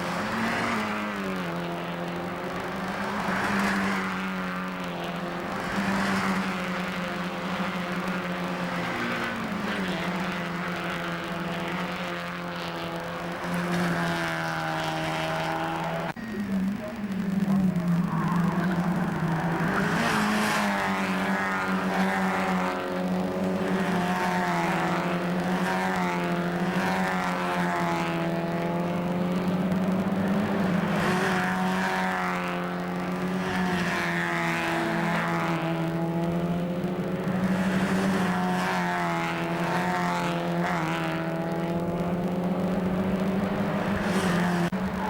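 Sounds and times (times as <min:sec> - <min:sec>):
race cars revving past: 0:00.0 - 0:45.0
steady low drone: 0:16.1 - 0:23.6.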